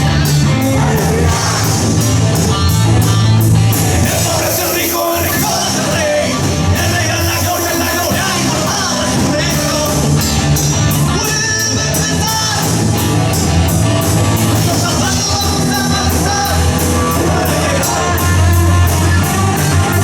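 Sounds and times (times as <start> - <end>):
rock band playing: 0.0 - 20.0
person singing: 14.6 - 20.0.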